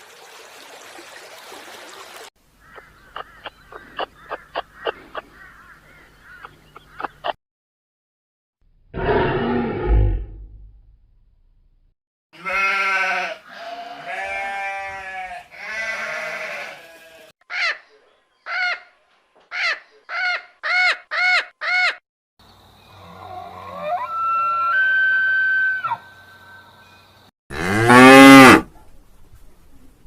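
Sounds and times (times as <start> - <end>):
livestock bleating: 12.4 - 17.3.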